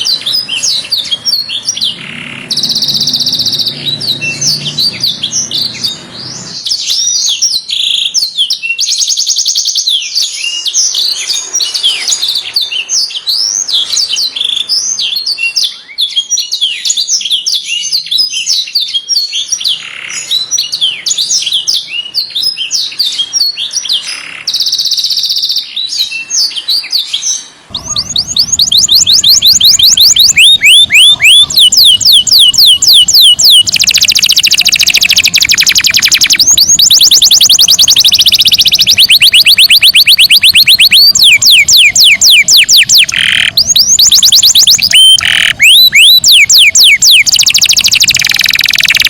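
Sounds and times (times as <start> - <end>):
canary singing: 0.0 - 49.0
buzzy trill: 27.7 - 49.0.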